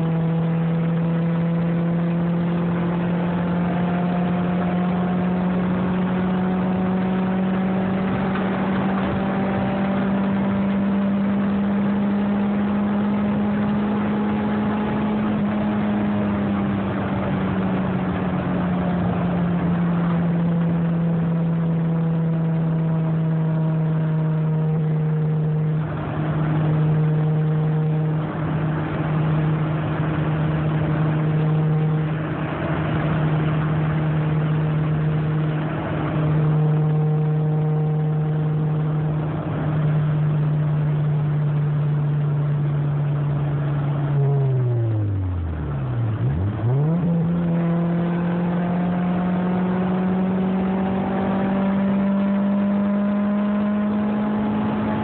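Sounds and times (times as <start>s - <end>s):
car engine at high revs: 0.0s - 55.0s
road noise hiss: 24.7s - 47.1s.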